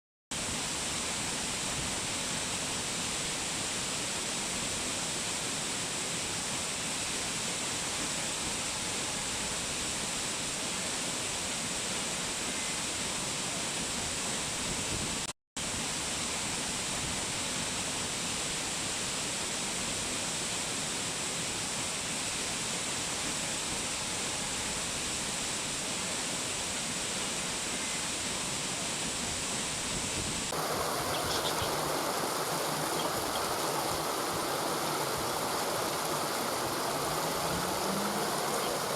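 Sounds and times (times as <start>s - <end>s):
waterfall rushing: 30.5s - 38.9s.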